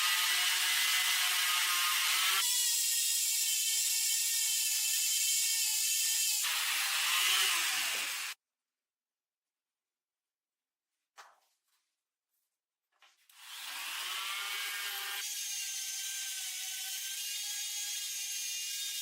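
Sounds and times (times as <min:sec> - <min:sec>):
power tool whirring against steel: 0:00.0 - 0:08.4, 0:13.4 - 0:19.0.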